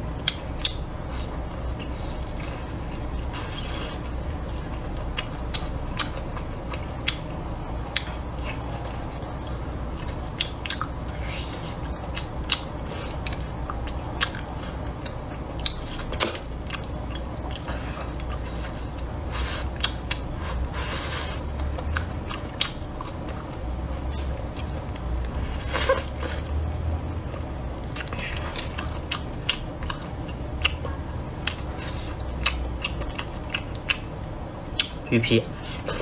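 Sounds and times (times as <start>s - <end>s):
chewing and biting ribs: 0.0s - 36.0s.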